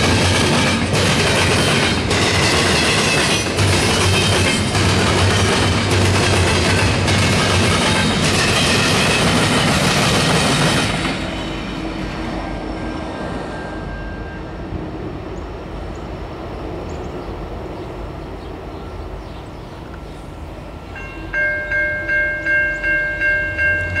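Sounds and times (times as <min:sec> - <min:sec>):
freight train rumble: 0:00.0 - 0:24.0
railroad crossing bell ringing: 0:11.1 - 0:14.6, 0:20.9 - 0:24.0.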